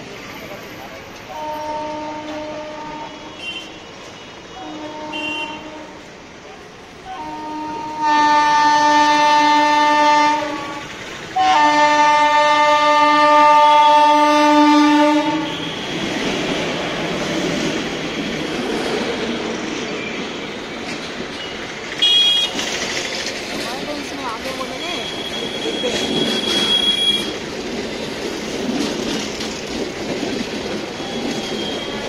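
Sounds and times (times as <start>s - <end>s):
train coaches rumbling and clattering: 0.0s - 32.0s
brief horn beep: 1.3s - 5.9s, 22.0s - 22.6s, 24.8s - 27.4s, 31.0s - 32.0s
locomotive horn blasts: 1.3s - 6.1s, 7.1s - 16.0s, 22.0s - 22.6s, 24.9s - 27.4s.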